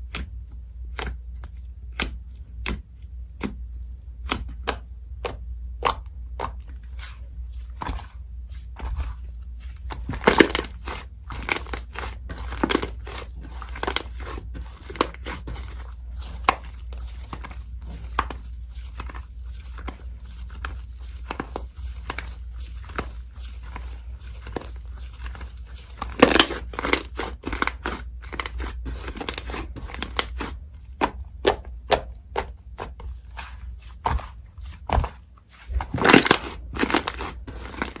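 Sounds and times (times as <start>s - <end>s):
slime popping and crackling: 10.1s - 17.5s, 26.0s - 32.6s, 35.7s - 38.0s.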